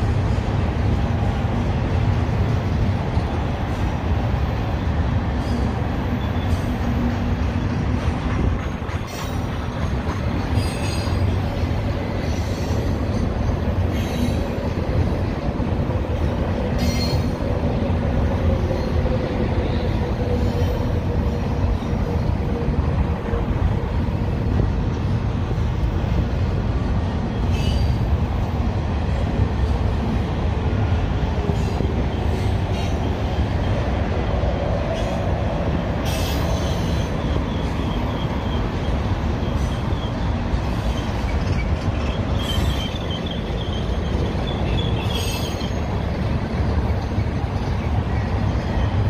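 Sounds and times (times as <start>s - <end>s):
train wheels rumbling on rail: 0.0s - 49.0s
faint wheel squeal: 27.5s - 28.0s, 36.0s - 46.1s.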